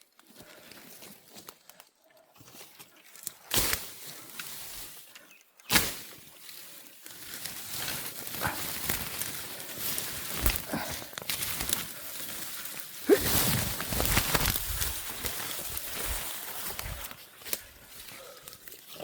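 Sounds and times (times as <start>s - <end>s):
footsteps rustling through undergrowth: 0.2s - 19.0s
crunching steps: 7.1s - 19.0s.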